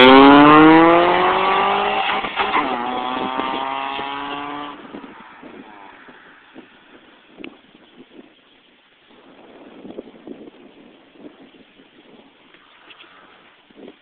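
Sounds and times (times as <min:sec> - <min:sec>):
car engine accelerating hard: 0:00.0 - 0:06.6.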